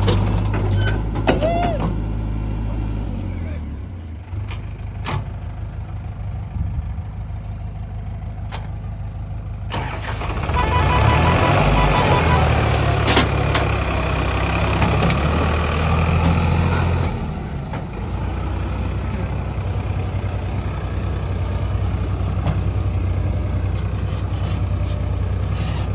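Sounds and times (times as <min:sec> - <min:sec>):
diesel machinery engine revving: 0:00.0 - 0:08.1, 0:09.6 - 0:25.9.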